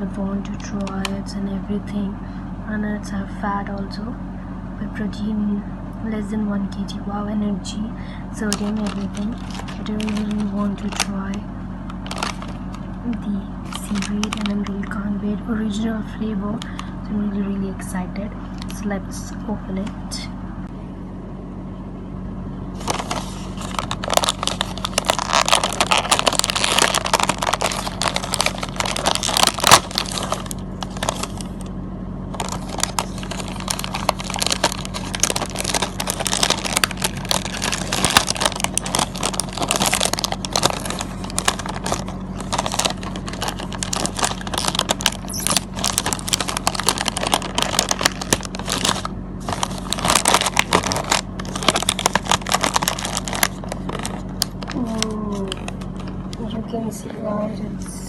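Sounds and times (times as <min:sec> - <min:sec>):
packaging crinkling: 0:08.4 - 0:13.0, 0:13.6 - 0:15.0, 0:22.8 - 0:56.2.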